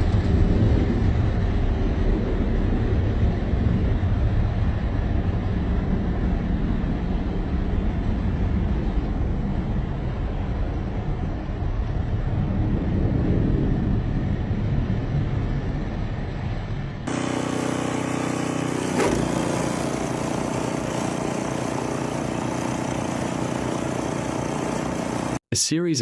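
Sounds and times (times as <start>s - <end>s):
vehicle engine and road noise: 0.0s - 25.4s.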